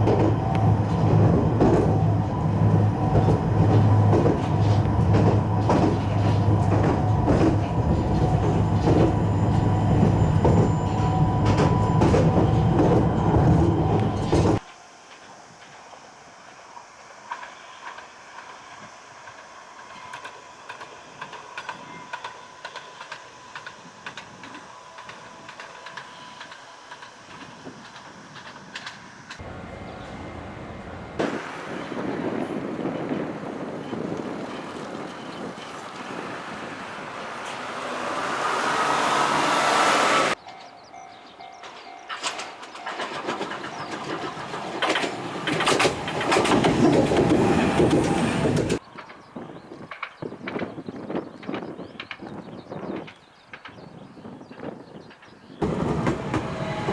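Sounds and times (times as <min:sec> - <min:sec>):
tram faint whine: 0:00.0 - 0:52.1, 0:52.7 - 0:56.9
wheel clicks over rail joints: 0:03.0 - 0:14.7, 0:41.4 - 0:50.8.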